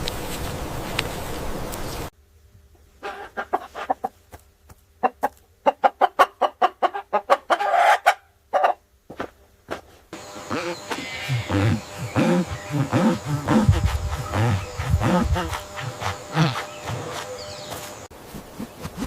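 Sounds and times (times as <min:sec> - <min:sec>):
steady noisy hum: 0:00.0 - 0:05.7, 0:08.4 - 0:19.0
chicken squawk: 0:03.0 - 0:04.1, 0:05.1 - 0:08.8, 0:10.4 - 0:17.4
chicken clucking: 0:03.0 - 0:04.2, 0:05.0 - 0:08.8, 0:10.4 - 0:18.0.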